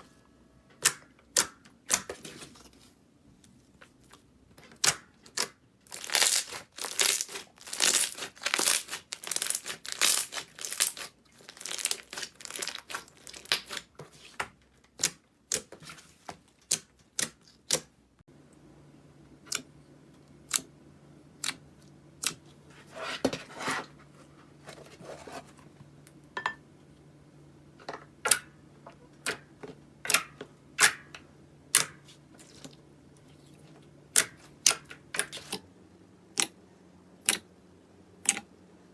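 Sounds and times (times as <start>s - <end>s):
low steady hum: 0.0s - 38.9s
slime crackling and popping: 4.8s - 13.9s.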